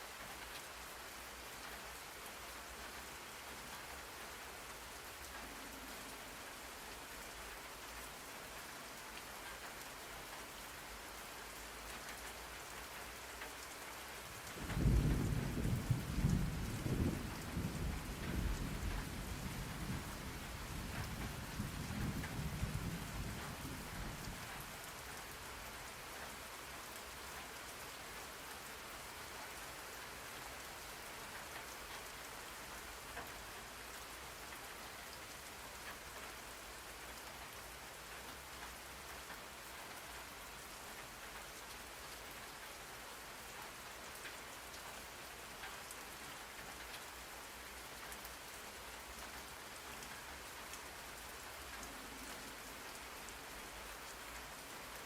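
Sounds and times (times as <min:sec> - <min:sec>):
rain falling: 0:00.0 - 0:55.0
thunder rumbling: 0:14.6 - 0:24.1.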